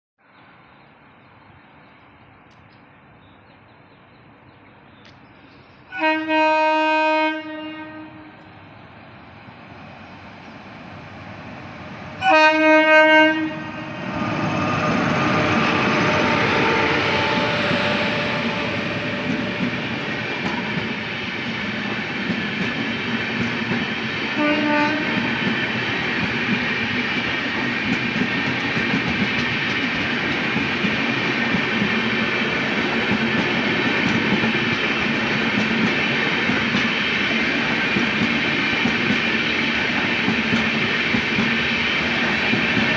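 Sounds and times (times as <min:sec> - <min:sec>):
train rumble: 0:05.0 - 0:42.9
locomotive horn blast: 0:05.9 - 0:08.5, 0:12.2 - 0:14.3, 0:24.4 - 0:25.3
coach wheels clattering on rails: 0:25.0 - 0:42.9.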